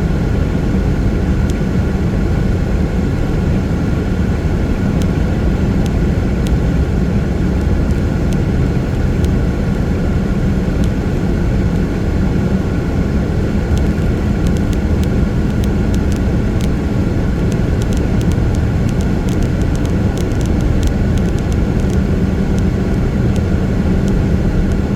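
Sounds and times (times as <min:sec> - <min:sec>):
car road rumble on wet road: 0:00.0 - 0:24.9
light ticks: 0:04.7 - 0:09.9, 0:13.6 - 0:24.9.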